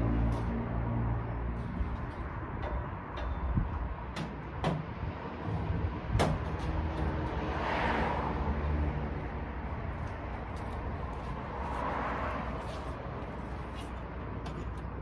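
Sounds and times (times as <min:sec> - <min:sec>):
metallic knocks: 0:02.0 - 0:05.1.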